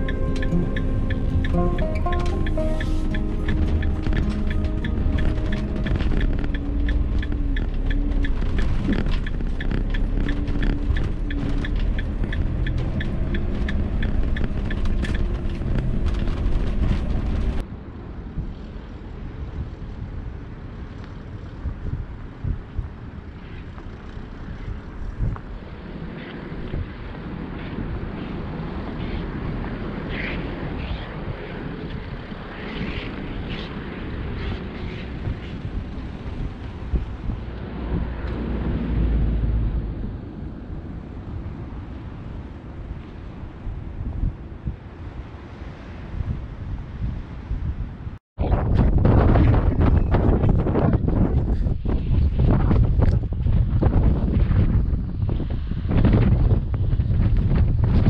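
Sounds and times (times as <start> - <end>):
soft background music: 0.0 - 8.5
ticking beat: 0.0 - 15.0
van rumbling at low speed: 0.0 - 17.6
wind noise on microphone: 0.0 - 58.0
campervan engine driving on gravel: 3.0 - 17.6.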